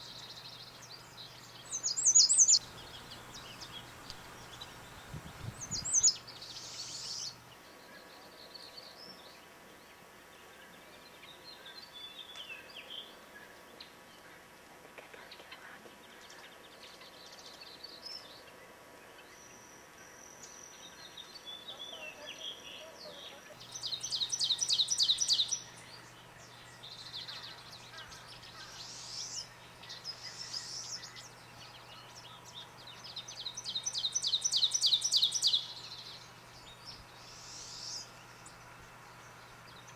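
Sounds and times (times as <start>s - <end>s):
loud fast bird trill: 0.0s - 7.4s, 23.6s - 38.7s
songbirds chirping: 0.0s - 13.8s, 23.6s - 39.9s.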